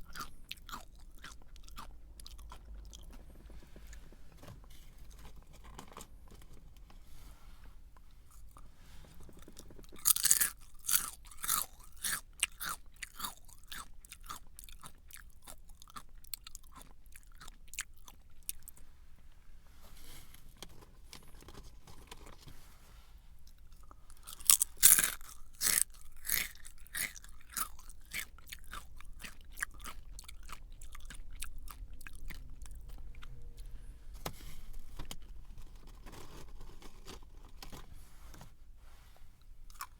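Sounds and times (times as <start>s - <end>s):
person biting and chewing crunchy snack: 0.0s - 3.2s, 9.4s - 18.7s, 23.5s - 33.6s, 39.7s - 39.9s.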